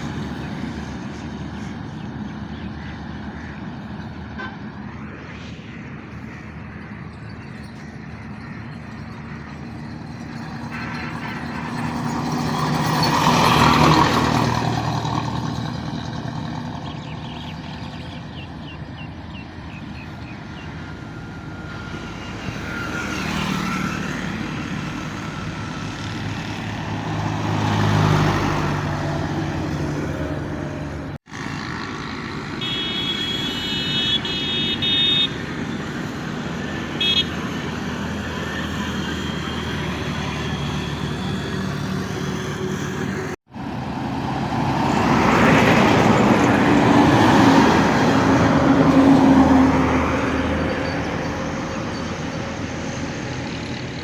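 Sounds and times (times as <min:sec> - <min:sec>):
heavy vehicles passing: 0:00.0 - 0:54.0
vehicle horn: 0:32.5 - 0:35.4, 0:37.0 - 0:37.5.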